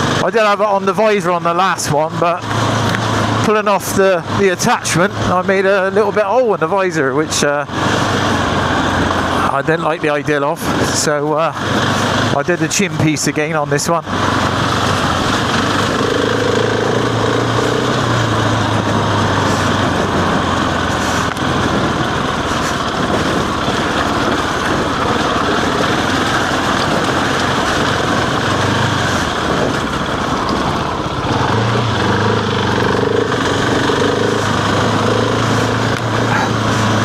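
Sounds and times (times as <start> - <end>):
motorcycle engine running: 0.0 - 37.0
rushing noise: 14.0 - 37.0.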